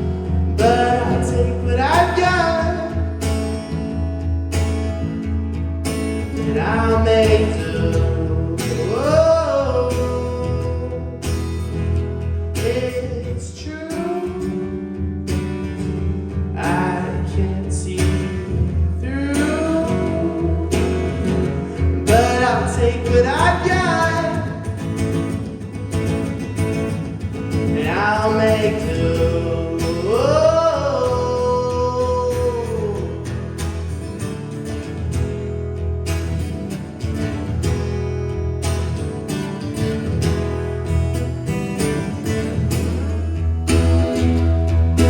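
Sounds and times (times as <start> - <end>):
person singing live: 0.0 - 3.4, 6.4 - 11.6, 16.6 - 24.8, 27.7 - 33.3
strummed guitar chords: 0.0 - 45.0.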